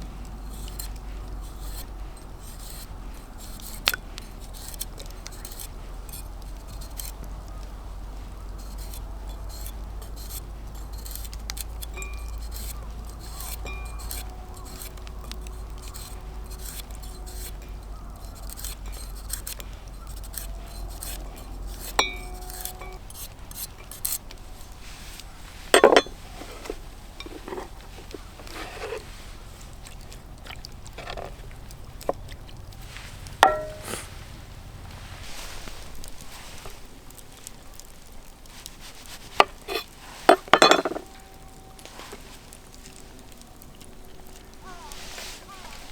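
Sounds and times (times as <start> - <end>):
cookware and utensils clinking: 21.8 - 24.1, 25.7 - 29.1, 33.4 - 34.1, 39.4 - 41.3.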